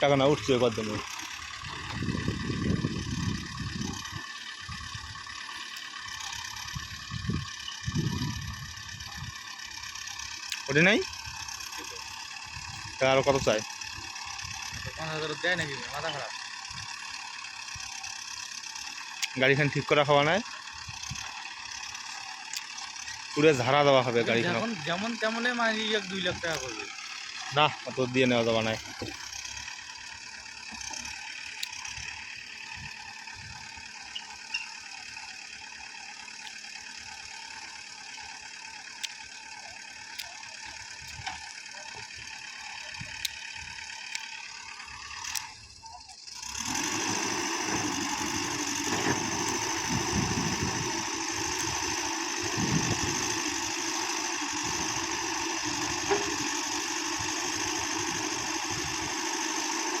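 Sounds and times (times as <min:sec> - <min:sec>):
tractor engine running: 0:00.0 - 1:00.0
scattered clicks: 0:43.1 - 0:43.4, 0:44.1 - 0:44.4, 0:45.2 - 0:45.6.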